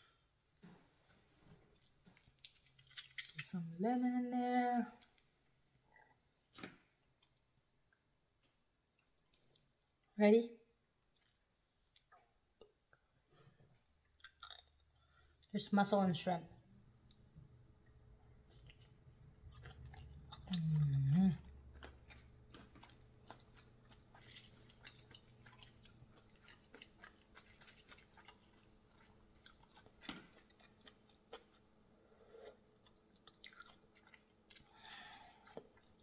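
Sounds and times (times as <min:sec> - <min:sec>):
chewing with wet mouth clicks: 0:02.2 - 0:03.5, 0:14.1 - 0:15.5, 0:18.5 - 0:20.9, 0:21.7 - 0:31.7, 0:32.4 - 0:36.0
person humming: 0:20.5 - 0:21.4.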